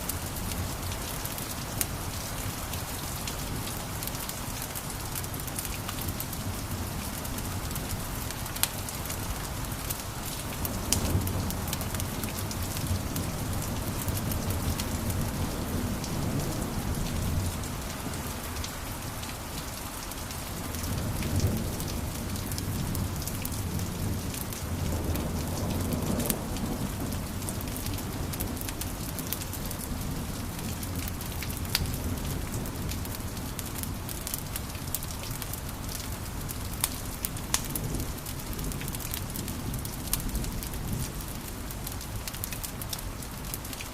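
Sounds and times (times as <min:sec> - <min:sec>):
low rumble of flames: 0:20.2 - 0:43.9
wood fire crackling and popping: 0:30.6 - 0:43.9.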